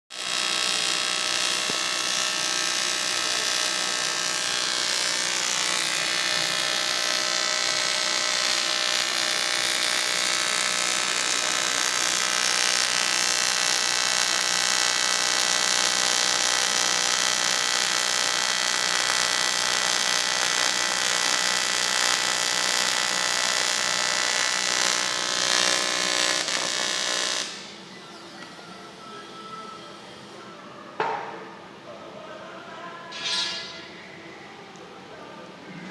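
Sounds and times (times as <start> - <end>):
welding arc buzzing: 0.1 - 27.9, 33.1 - 34.0.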